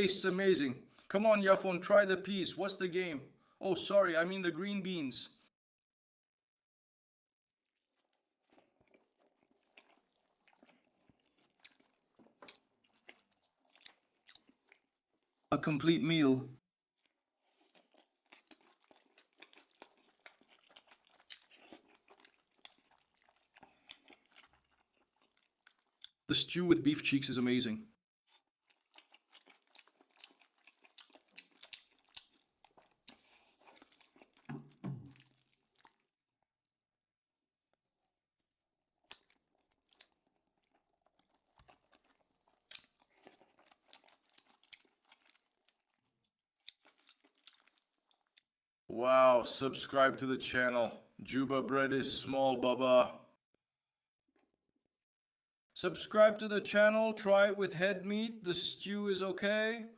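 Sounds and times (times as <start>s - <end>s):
chewing food: 7.7s - 15.5s, 16.9s - 26.3s, 28.3s - 36.5s, 38.9s - 48.6s, 54.4s - 54.7s.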